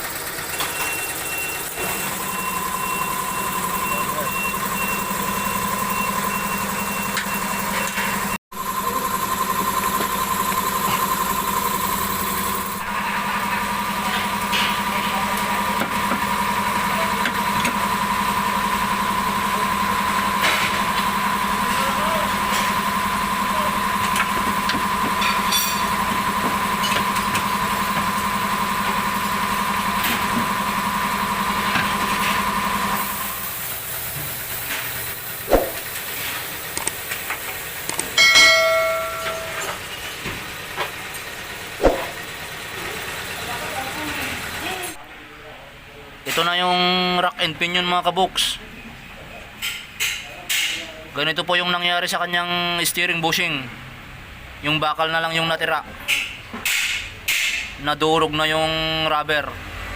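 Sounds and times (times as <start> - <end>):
machine hum with two tones: 0.0 - 45.0.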